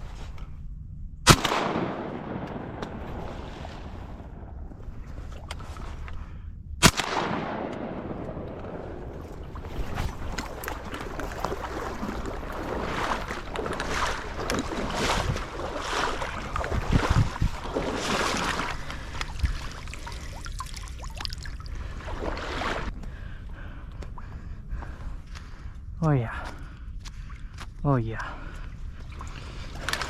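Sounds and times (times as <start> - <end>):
paddle strokes in water: 8.8 - 22.9.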